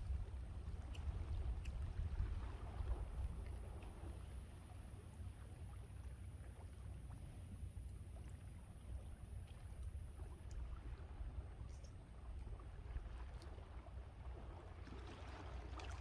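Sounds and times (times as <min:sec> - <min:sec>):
wind buffeting microphone: 0:00.0 - 0:03.7.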